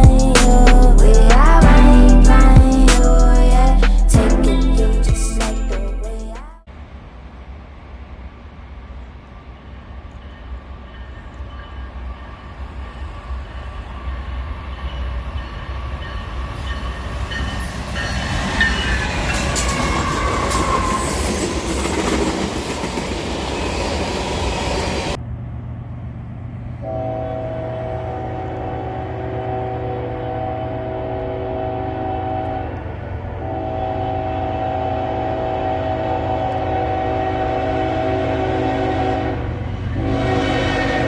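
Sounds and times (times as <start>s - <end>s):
train rumbling past: 0.0s - 41.0s
wheels squealing on rails: 8.0s - 25.2s.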